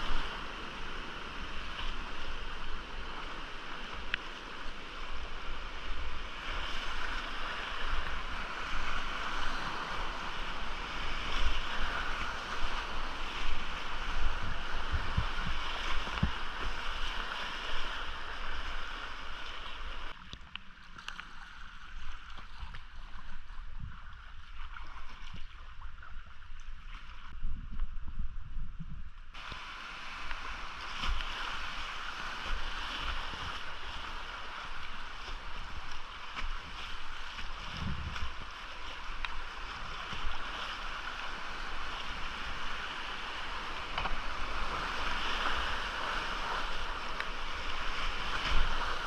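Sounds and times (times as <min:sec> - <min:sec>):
whitewater rushing in creek: 0:00.0 - 0:26.5, 0:29.4 - 0:49.0
wind buffeting microphone: 0:06.2 - 0:18.0, 0:27.3 - 0:29.4, 0:36.5 - 0:38.6.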